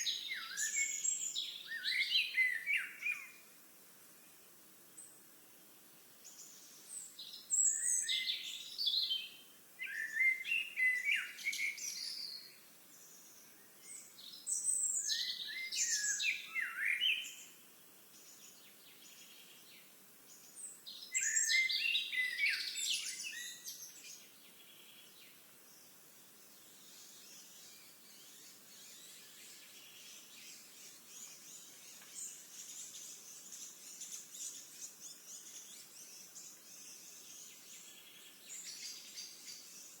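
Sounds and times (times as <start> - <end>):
songbird singing: 0.0 - 40.0
high-pitched hiss: 22.7 - 40.0.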